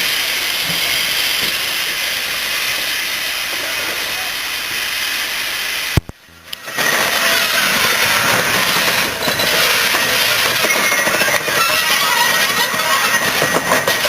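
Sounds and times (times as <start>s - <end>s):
steam locomotive hissing: 0.0s - 14.0s
loud noisy running sound: 5.9s - 14.0s.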